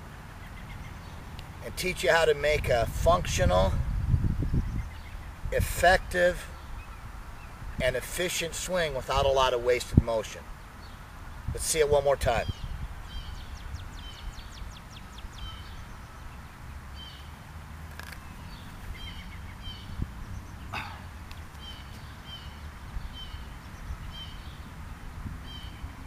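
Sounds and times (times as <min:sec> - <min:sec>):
bird chirping: 0:00.4 - 0:01.4, 0:04.4 - 0:05.4, 0:12.3 - 0:26.0.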